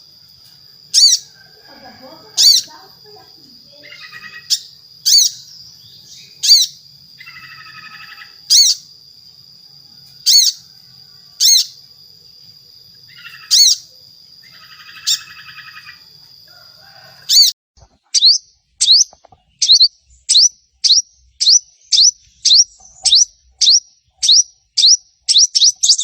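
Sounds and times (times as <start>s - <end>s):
sharp high bird calls: 0.9s - 1.4s, 2.4s - 8.9s, 10.2s - 10.7s, 11.3s - 11.8s, 13.1s - 16.1s, 17.2s - 17.5s, 18.1s - 26.0s
rapid buzzy bird chattering: 0.9s - 9.1s, 10.2s - 12.0s, 12.9s - 16.1s, 17.3s - 26.0s.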